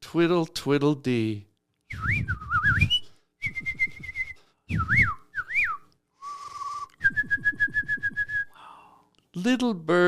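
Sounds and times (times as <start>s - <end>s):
bird-like whistling: 1.9s - 8.6s.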